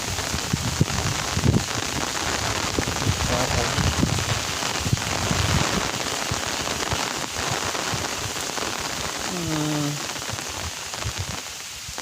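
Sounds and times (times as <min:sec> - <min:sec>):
steady rain hiss: 0:00.0 - 0:12.0
man's voice: 0:03.2 - 0:03.9.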